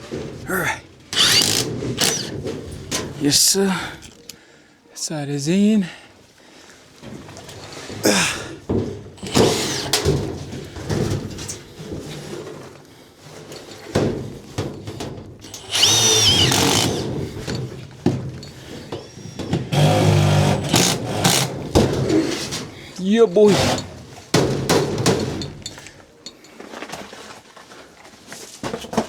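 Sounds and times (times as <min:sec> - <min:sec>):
cordless drill driving screws: 0:01.2 - 0:02.4, 0:09.2 - 0:10.1, 0:15.5 - 0:17.6, 0:19.1 - 0:21.7, 0:23.5 - 0:23.9.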